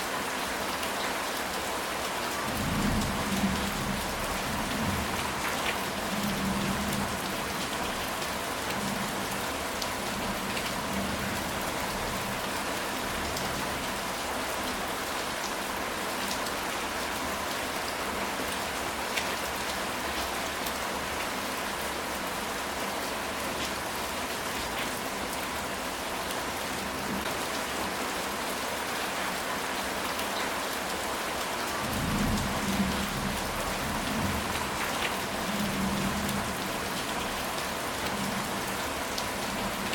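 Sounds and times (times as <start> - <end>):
rain on a tile roof: 0.0 - 39.9.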